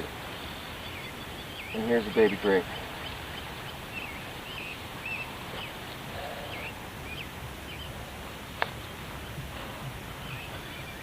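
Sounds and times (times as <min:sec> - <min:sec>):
birds chirping: 0:00.0 - 0:11.0
outdoor background noise: 0:00.0 - 0:11.0.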